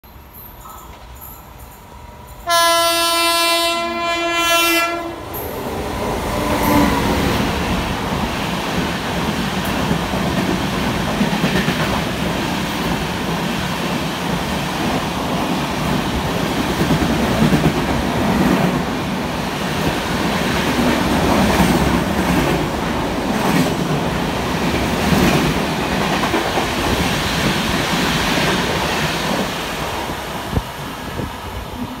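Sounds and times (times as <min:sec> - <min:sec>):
train passing at speed: 0:00.0 - 0:32.0
train horn blast: 0:02.4 - 0:05.4.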